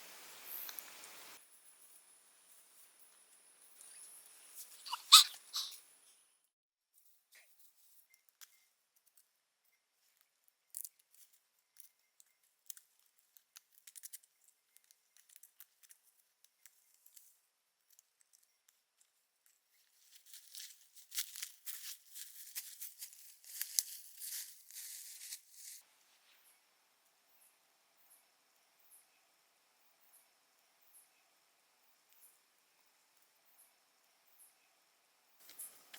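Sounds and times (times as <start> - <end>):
light clicks and snips: 10.1 - 19.6
dense rustling and crinkling: 19.8 - 25.8.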